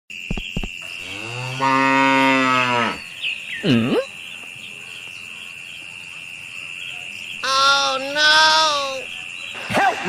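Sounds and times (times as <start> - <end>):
cow mooing: 1.0 - 3.1.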